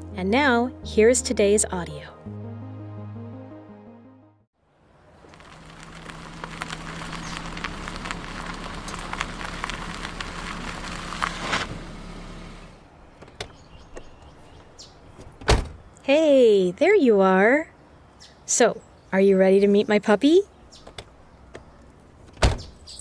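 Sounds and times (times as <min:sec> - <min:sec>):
car running low hum: 0:05.0 - 0:16.0
car door shutting: 0:15.1 - 0:15.9, 0:20.8 - 0:22.8.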